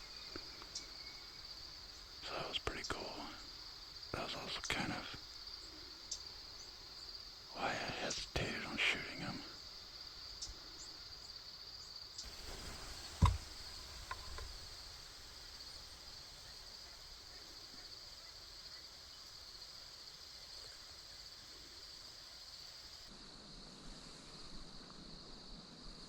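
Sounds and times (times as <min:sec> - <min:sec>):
insects trilling: 0:00.0 - 0:23.6
faint ticks: 0:00.1 - 0:01.0, 0:12.2 - 0:23.1
sharp knock: 0:12.8 - 0:13.5.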